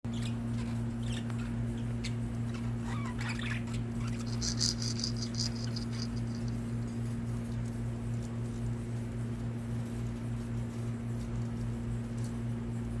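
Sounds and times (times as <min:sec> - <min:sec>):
steady low hum: 0:00.0 - 0:13.0
budgies chirping: 0:00.1 - 0:06.4.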